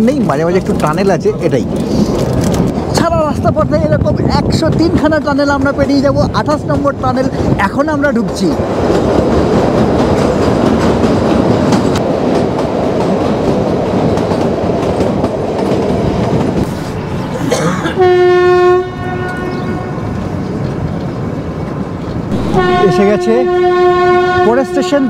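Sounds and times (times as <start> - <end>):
train wheels clattering on rails: 4.4 - 18.0
train horn: 17.0 - 20.4, 22.3 - 25.0.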